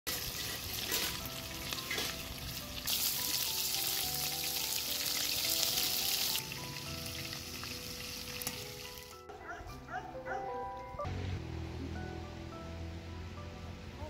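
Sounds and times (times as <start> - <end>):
food deep-frying in oil: 0.1 - 9.2.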